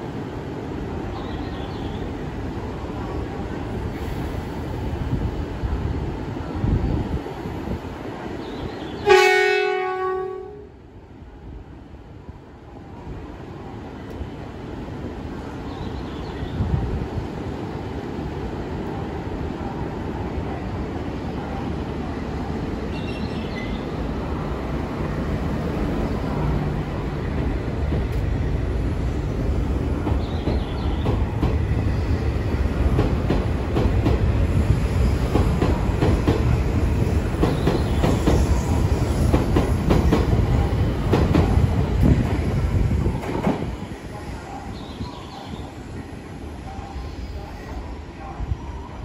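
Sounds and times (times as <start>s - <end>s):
train accelerating past: 20.5s - 44.5s.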